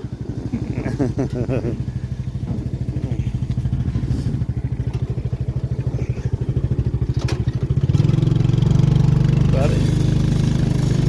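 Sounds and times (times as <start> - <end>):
vehicle engine pulsing: 0.0 - 11.0.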